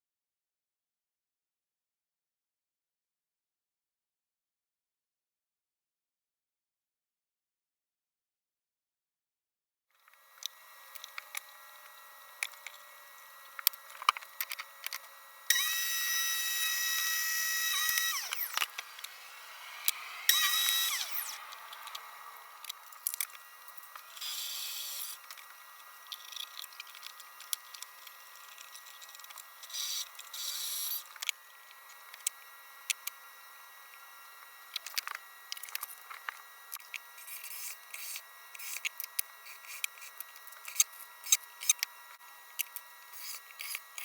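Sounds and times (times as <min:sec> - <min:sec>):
power tool motor whining: 0:10.2 - 0:44.0.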